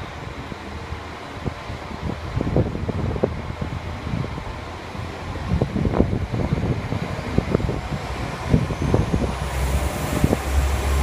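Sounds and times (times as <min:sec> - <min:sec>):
diesel train engine running: 0:00.0 - 0:11.0
hiss: 0:08.3 - 0:11.0.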